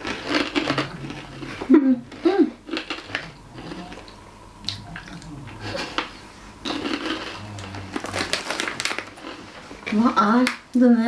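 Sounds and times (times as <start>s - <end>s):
people chewing crunchy chips: 0.0s - 10.3s
mouth smacking: 2.7s - 9.0s.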